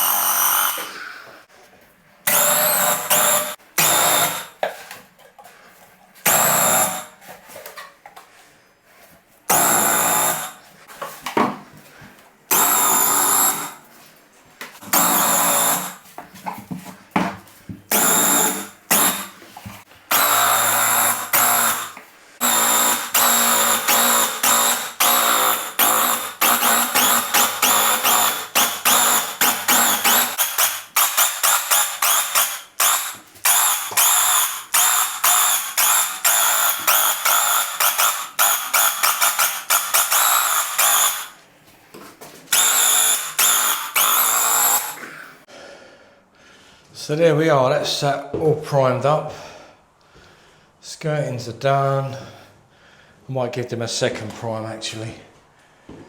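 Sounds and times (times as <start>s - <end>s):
paint sprayer pump buzzing: 20.1s - 41.3s.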